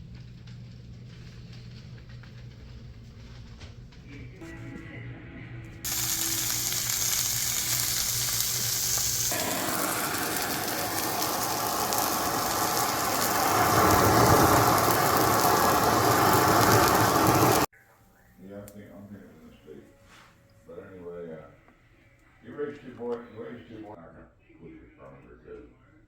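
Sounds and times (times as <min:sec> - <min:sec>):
sizzling hiss: 0:05.9 - 0:17.7.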